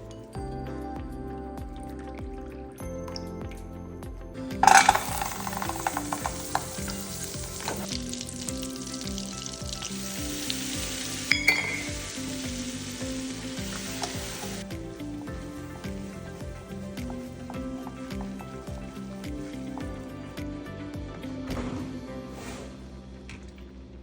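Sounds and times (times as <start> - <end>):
food sizzling in hot oil: 4.6 - 19.8.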